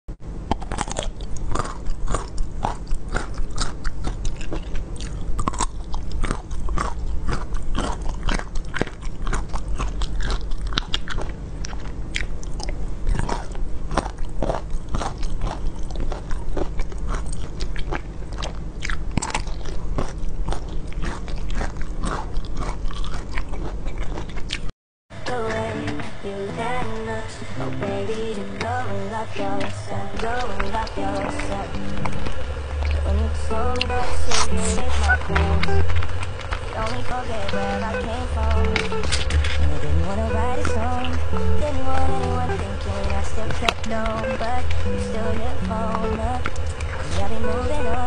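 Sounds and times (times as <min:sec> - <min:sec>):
low steady hum: 0:00.2 - 0:48.0
person chewing crackling sweets: 0:00.3 - 0:26.2, 0:27.7 - 0:48.0.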